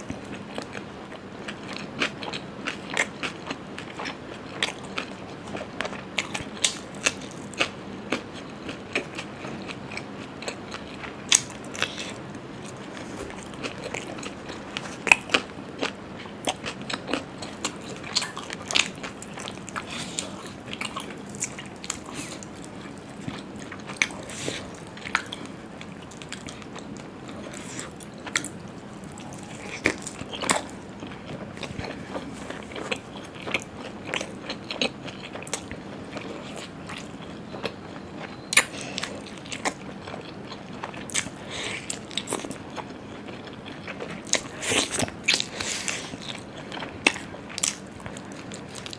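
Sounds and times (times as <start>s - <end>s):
person chewing food: 0.0s - 48.9s.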